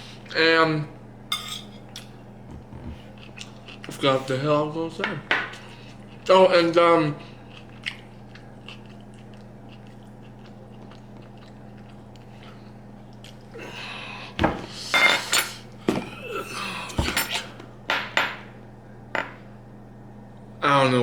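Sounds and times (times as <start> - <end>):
faint steady hum: 0.0 - 21.0
cutlery clattering against dishes: 1.3 - 2.1.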